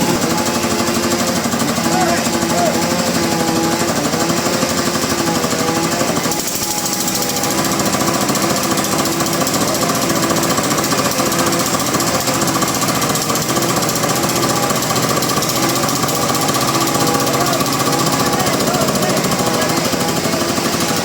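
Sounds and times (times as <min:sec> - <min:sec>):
sawmill machinery rattling: 0:00.0 - 0:21.0.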